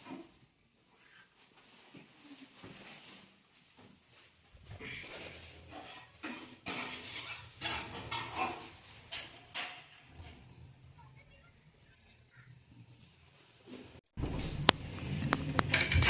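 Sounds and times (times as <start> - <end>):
dishes and cutlery clinking: 5.0 - 10.5, 15.4 - 16.0.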